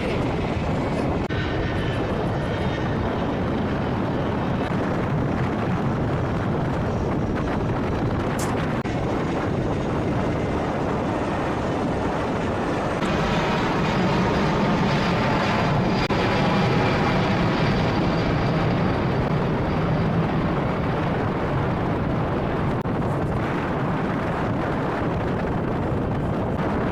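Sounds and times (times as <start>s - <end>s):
high engine whine: 0.0s - 26.9s
jet engines droning: 0.0s - 26.9s.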